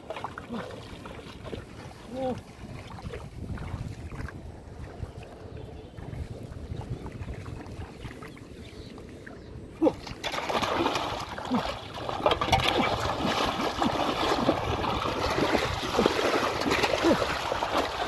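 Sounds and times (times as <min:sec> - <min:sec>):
water splashing and sloshing: 0:00.0 - 0:18.0
sharp water splash: 0:10.0 - 0:18.0.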